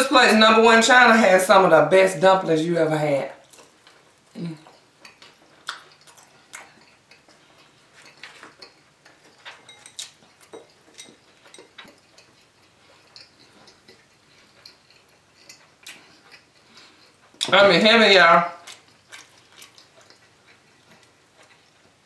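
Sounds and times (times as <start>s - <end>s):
soft crunches of chewing: 3.4s - 17.5s, 18.5s - 22.0s
wet mouth clicks: 4.3s - 7.4s.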